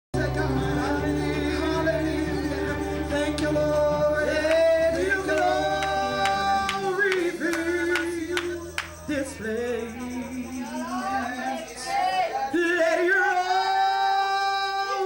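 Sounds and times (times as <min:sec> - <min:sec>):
low accompaniment: 0:00.2 - 0:11.3
choir singing worship song: 0:00.2 - 0:15.0
sharp percussive hits: 0:02.7 - 0:10.9.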